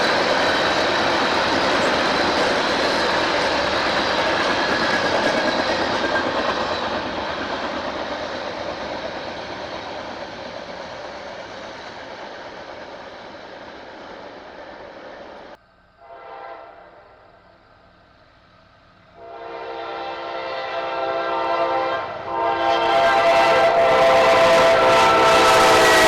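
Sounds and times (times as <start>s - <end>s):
train rolling past: 0.0s - 26.0s
locomotive horn: 16.0s - 17.3s, 19.2s - 26.0s.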